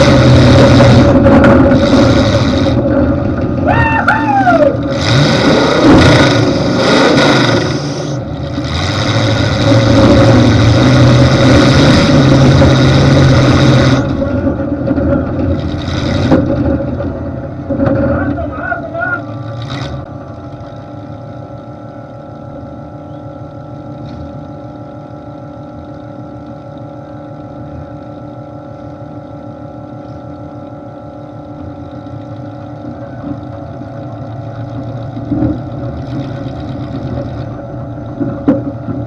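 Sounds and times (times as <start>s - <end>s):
engine idling through open exhaust: 0.0s - 39.0s.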